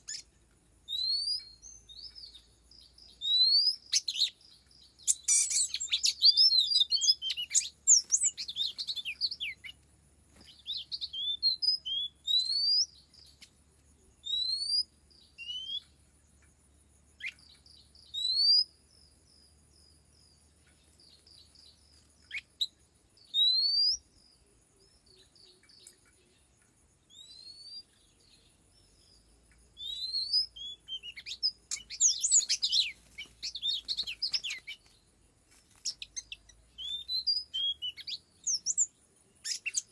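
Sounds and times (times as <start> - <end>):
bird song: 0.0 - 39.9
single rising whistles: 29.8 - 34.8.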